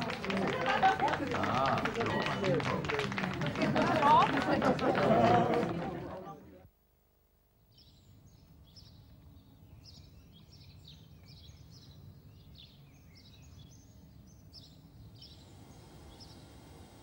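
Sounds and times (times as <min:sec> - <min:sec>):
small birds chirping: 0:07.6 - 0:17.0.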